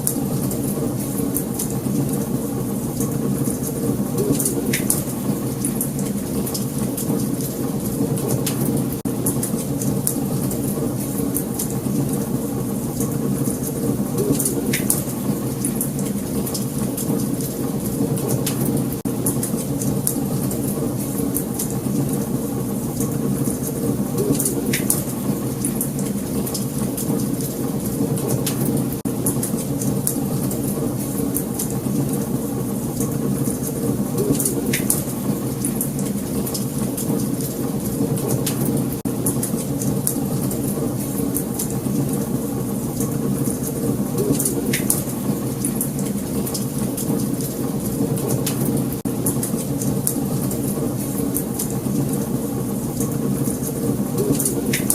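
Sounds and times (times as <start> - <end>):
low rumble of flames: 0.0 - 54.9
wood fire crackling and popping: 0.0 - 54.9.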